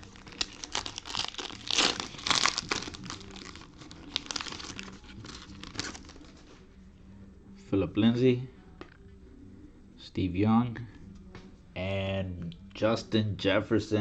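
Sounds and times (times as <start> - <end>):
plastic wrapper tearing and crinkling: 0.0 - 6.4.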